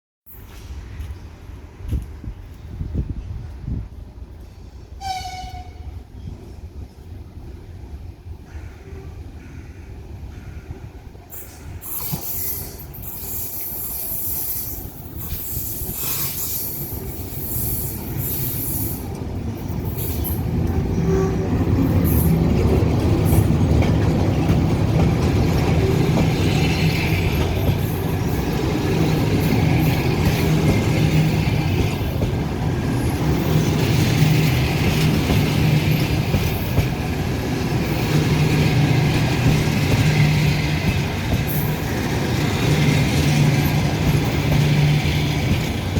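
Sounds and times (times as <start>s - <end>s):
train wheels rolling on rails: 10.2s - 45.9s.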